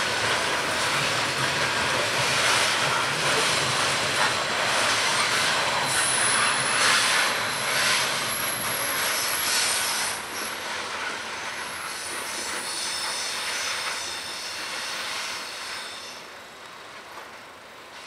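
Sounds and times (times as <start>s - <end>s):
train wheels rolling on rails: 0.0s - 18.0s
high wheel squeal: 5.0s - 16.4s.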